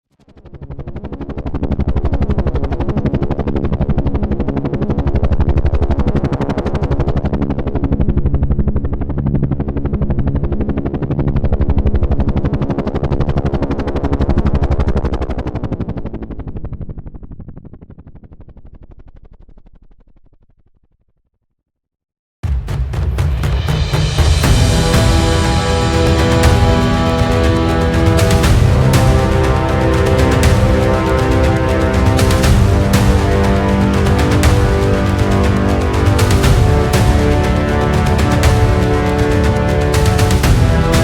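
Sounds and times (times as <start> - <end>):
helicopter rotor chopping: 24.3 - 41.0.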